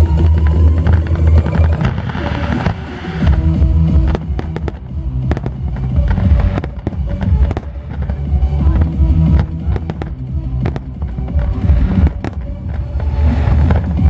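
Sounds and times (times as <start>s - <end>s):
fireworks bangs and pops: 0.0s - 14.0s
fireworks bursting and crackling: 0.0s - 14.0s
music with heavy bass beat: 0.0s - 14.0s.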